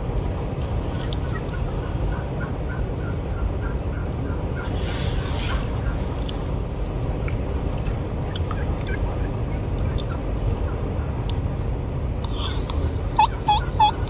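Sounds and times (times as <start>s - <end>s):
turkey yelps: 13.2s - 14.0s.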